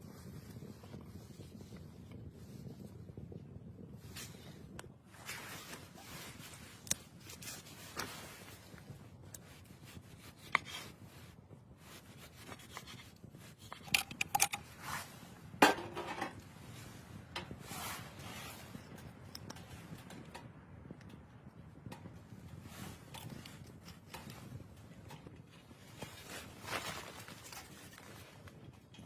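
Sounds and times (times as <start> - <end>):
rubbing and rustling: 5.1 - 18.9, 25.6 - 28.6.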